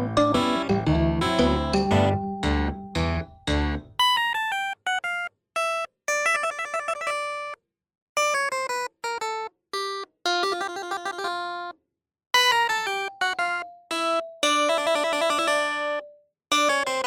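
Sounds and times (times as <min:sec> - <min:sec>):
bright plucked bell-like notes: 0:00.0 - 0:03.9.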